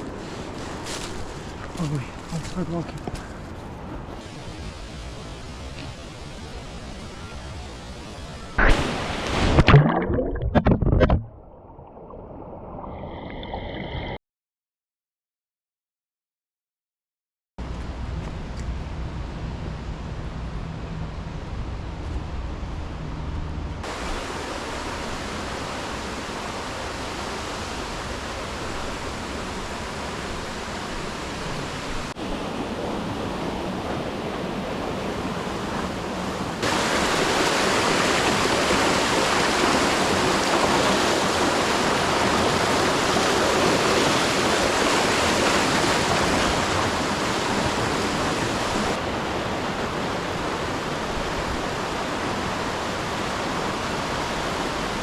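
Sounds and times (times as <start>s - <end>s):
rushing water hiss: 0.0s - 9.6s, 23.8s - 55.0s.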